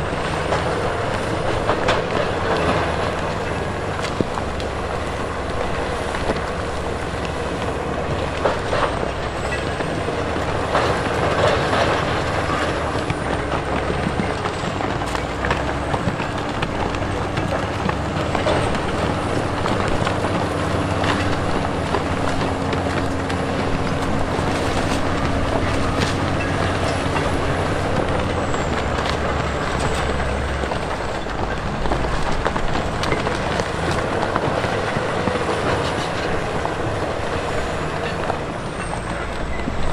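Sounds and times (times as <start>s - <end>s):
diesel earthmoving machinery running: 0.0s - 39.9s.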